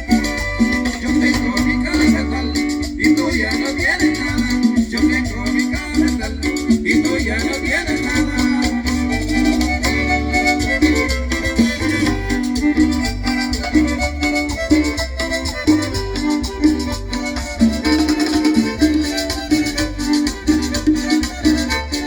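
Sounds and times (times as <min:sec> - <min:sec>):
shaker rhythm: 0:00.0 - 0:22.0
upright bass beat: 0:00.0 - 0:22.0
melody instruments: 0:06.3 - 0:22.0.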